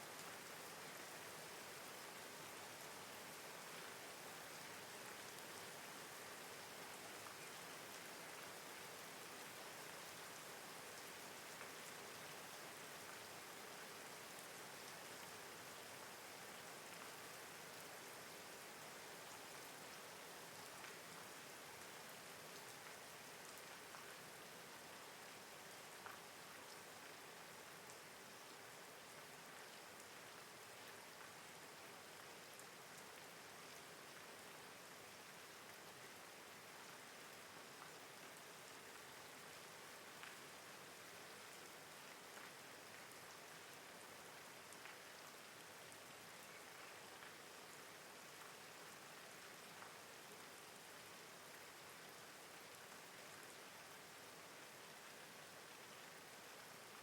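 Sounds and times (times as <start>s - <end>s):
faint rain falling: 0.0s - 57.0s
single raindrop ticks: 26.0s - 26.2s.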